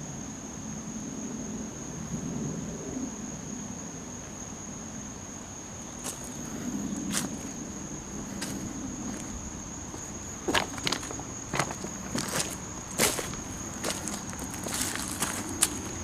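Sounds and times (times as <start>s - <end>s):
high-pitched insect drone: 0.0s - 16.0s
crunching footsteps: 6.0s - 16.0s.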